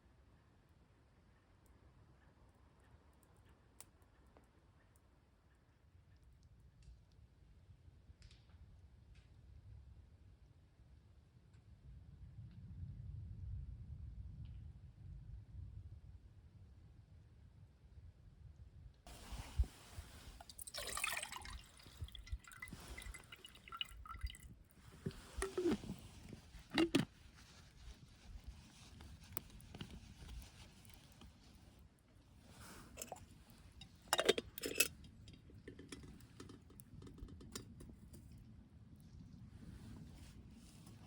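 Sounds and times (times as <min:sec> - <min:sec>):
liquid being poured: 0:19.1 - 0:27.1, 0:32.9 - 0:33.3
handling noises: 0:24.8 - 0:31.8.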